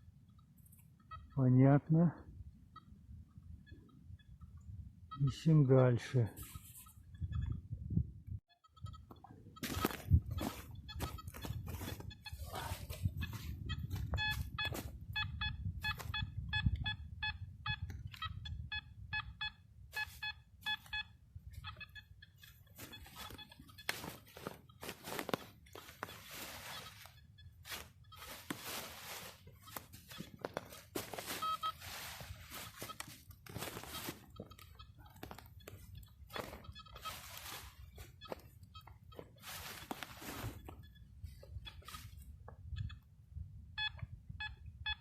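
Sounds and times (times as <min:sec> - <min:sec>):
metal detector beeping: 0:01.0 - 0:01.9, 0:02.7 - 0:07.7, 0:08.5 - 0:45.0
crunching and scraping: 0:09.6 - 0:14.9, 0:22.5 - 0:40.8.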